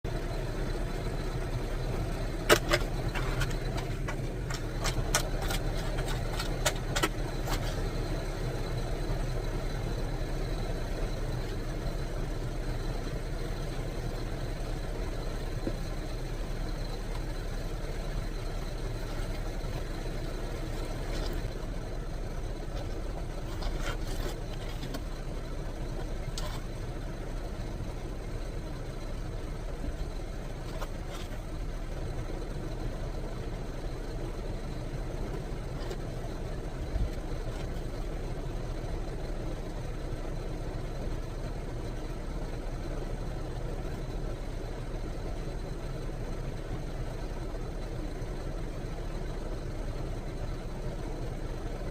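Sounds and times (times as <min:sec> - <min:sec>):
car engine idling: 0:00.0 - 0:51.9
sharp clicks and knocks: 0:02.3 - 0:07.8.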